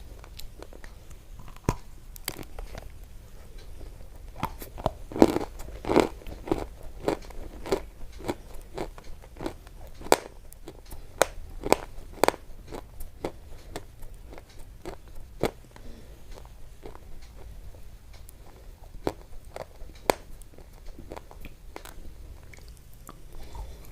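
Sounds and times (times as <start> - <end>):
crunching clicks: 0.1 - 23.9.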